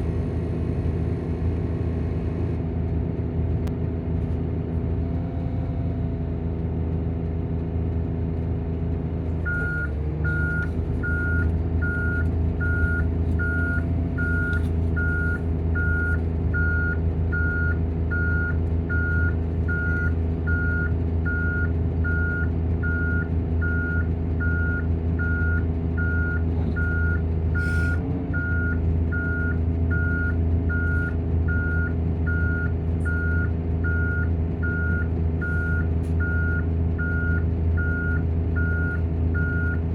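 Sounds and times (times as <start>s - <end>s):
diesel engine running: 0.0s - 39.9s
reversing beeper: 9.4s - 39.8s.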